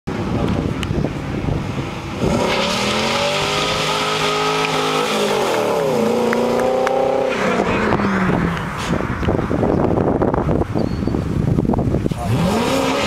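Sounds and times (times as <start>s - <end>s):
car engine accelerating hard: 1.6s - 9.4s, 12.0s - 13.0s.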